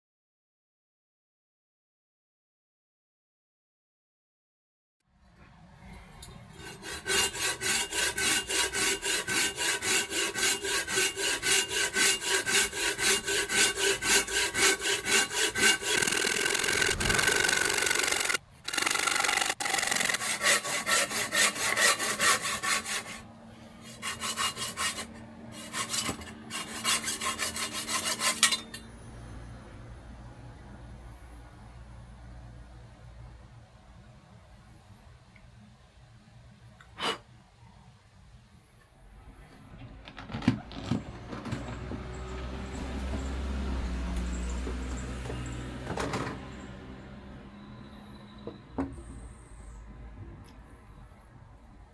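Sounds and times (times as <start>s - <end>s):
hand saw cutting branch: 6.6s - 28.8s.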